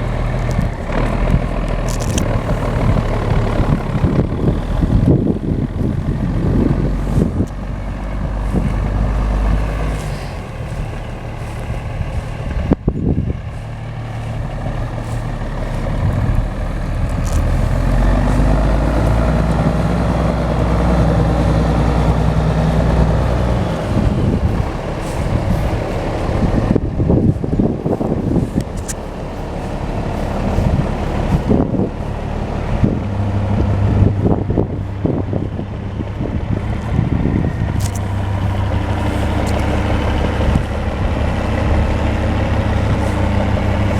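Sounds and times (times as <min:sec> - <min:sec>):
truck engine running: 0:00.0 - 0:43.9.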